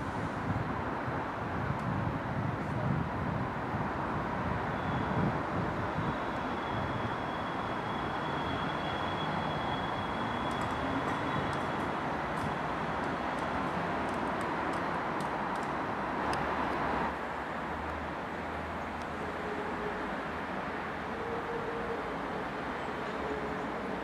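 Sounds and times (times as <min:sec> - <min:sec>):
train running gear rumble: 0:06.3 - 0:15.8.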